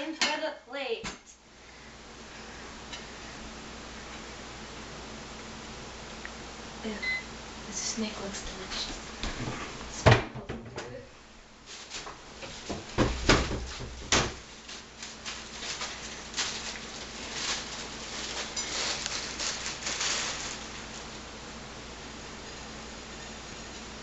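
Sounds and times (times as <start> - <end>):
objects knocking and clattering: 12.5 - 14.4.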